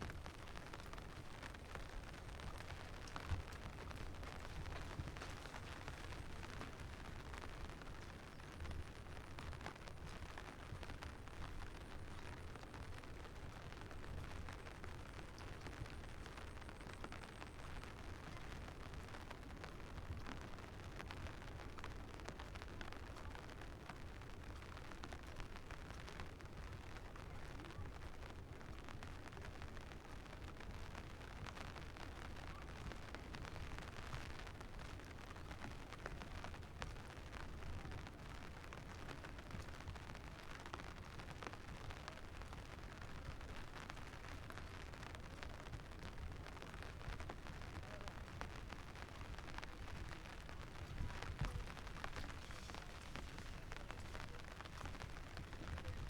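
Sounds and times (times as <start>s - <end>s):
faint patter of drops: 0.0s - 56.0s
steady rain hiss: 0.0s - 56.0s
wind rumble on microphone: 45.4s - 56.0s.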